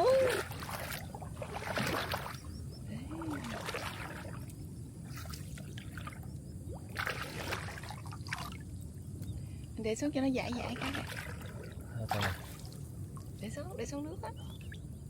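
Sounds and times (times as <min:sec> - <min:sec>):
net splashing in water: 0:00.0 - 0:02.4, 0:03.3 - 0:04.4, 0:05.1 - 0:08.6, 0:10.7 - 0:11.5, 0:12.1 - 0:12.8
water trickling: 0:00.0 - 0:15.0.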